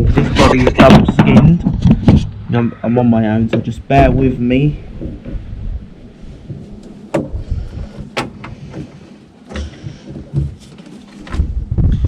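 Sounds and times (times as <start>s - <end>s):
low rubbing and bumping: 0.0s - 12.0s
knocks against car body: 7.1s - 7.4s, 8.0s - 8.9s.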